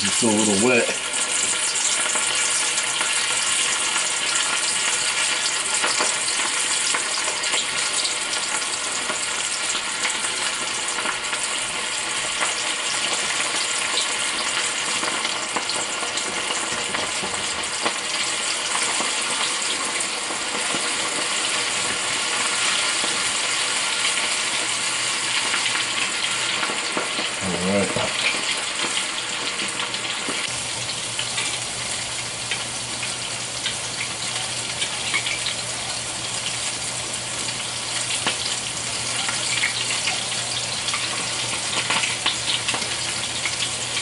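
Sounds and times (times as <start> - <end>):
shrimp deep-frying in oil: 0.0 - 44.0.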